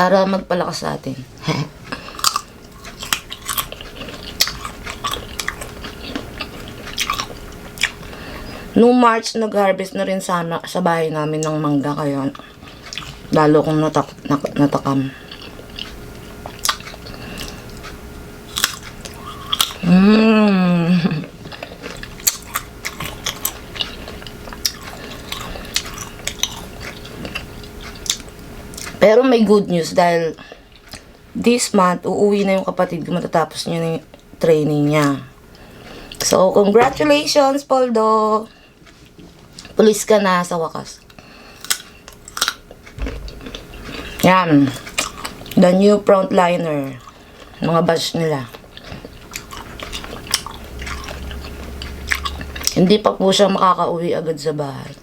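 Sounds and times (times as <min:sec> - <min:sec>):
crunching mango being chewed: 0:01.7 - 0:08.6, 0:12.3 - 0:19.9, 0:21.2 - 0:29.0, 0:30.6 - 0:31.2, 0:38.6 - 0:39.8, 0:41.0 - 0:45.6, 0:46.9 - 0:47.7, 0:48.5 - 0:52.8.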